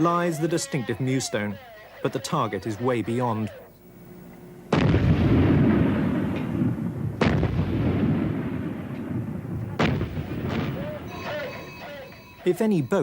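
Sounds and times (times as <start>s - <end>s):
naval gun firing: 4.7s - 11.5s.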